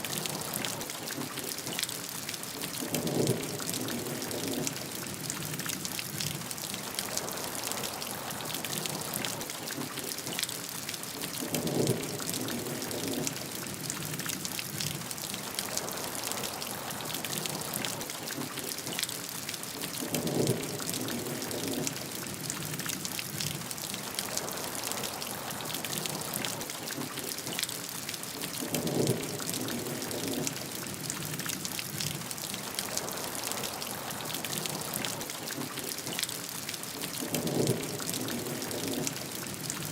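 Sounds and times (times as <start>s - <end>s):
rain drops hitting a surface: 0.0s - 39.9s.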